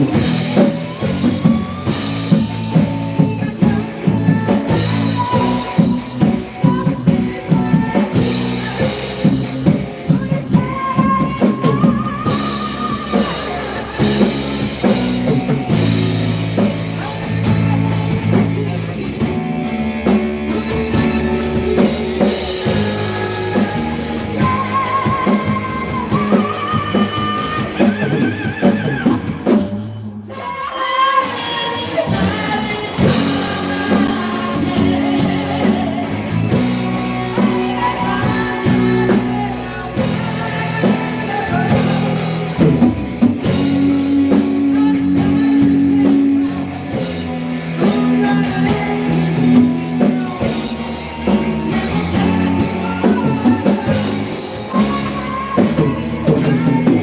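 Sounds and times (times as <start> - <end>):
drum kit: 0.0 - 57.0
electric guitar: 0.0 - 57.0
person singing: 0.0 - 57.0.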